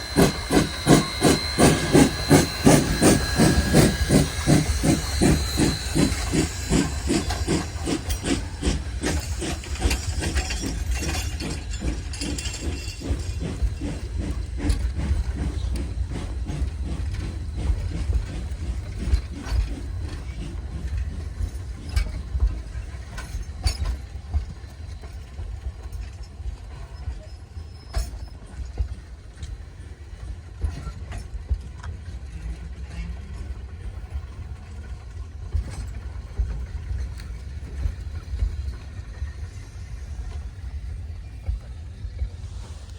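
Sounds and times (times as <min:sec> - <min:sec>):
steady low train rumble: 0:00.0 - 0:42.9
steam locomotive exhaust chuffs: 0:00.0 - 0:42.9
train clanks and squeaks: 0:00.0 - 0:42.9.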